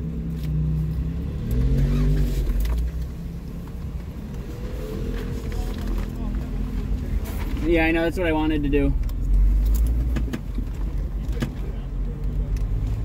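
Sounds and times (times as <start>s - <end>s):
engine running from inside cab: 0.0s - 13.0s
knocks and clicks: 9.0s - 11.6s.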